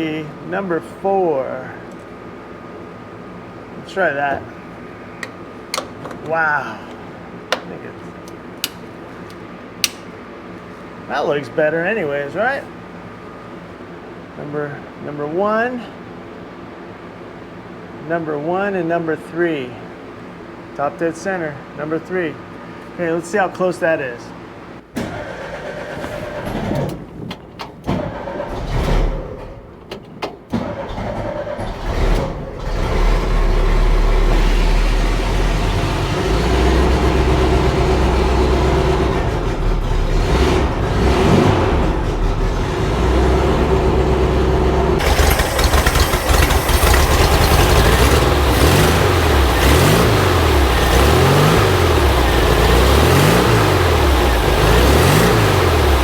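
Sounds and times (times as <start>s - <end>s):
engine starting and revving: 25.0s - 27.0s, 27.9s - 29.7s, 30.5s - 56.0s.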